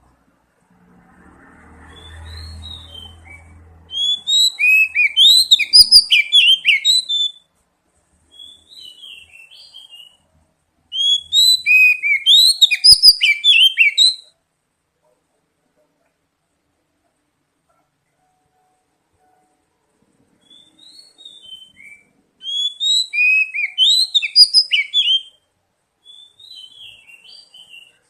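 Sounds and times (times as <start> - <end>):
bird song whistled notes: 1.8 - 7.5, 8.3 - 10.3, 10.9 - 14.4, 20.3 - 28.0.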